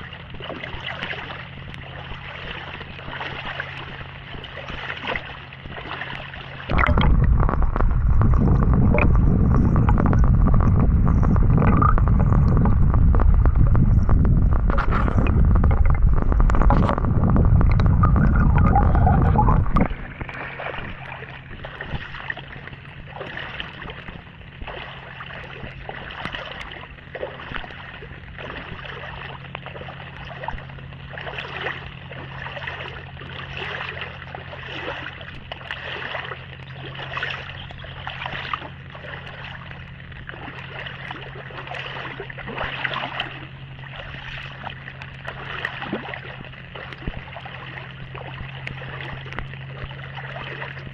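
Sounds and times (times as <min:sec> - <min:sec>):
steady low hum: 0:00.0 - 0:50.9
loud low rumble: 0:06.7 - 0:23.2.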